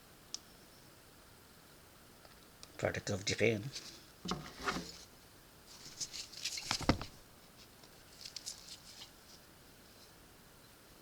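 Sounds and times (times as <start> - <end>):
hands rustling: 5.7 - 9.4.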